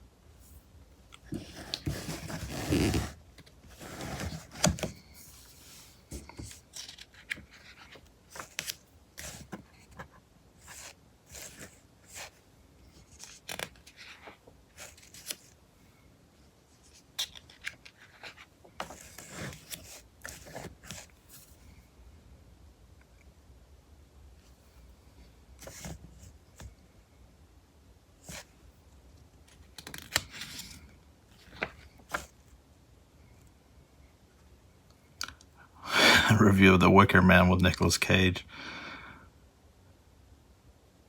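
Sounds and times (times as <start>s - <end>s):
magazine pages turning: 1.2s - 12.3s, 13.0s - 15.6s, 16.9s - 21.2s, 29.5s - 32.4s.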